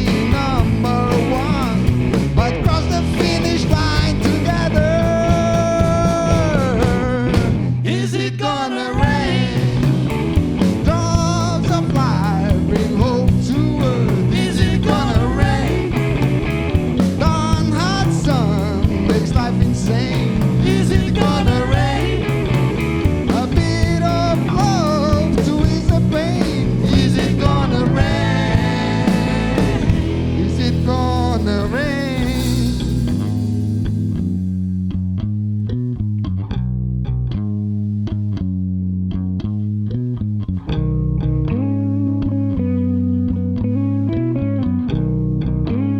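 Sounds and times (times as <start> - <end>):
drums with cymbals: 0.0 - 4.6, 12.0 - 34.4
bass guitar: 0.0 - 45.9
picked guitar: 0.0 - 45.9
lead guitar with bent notes: 9.1 - 45.9.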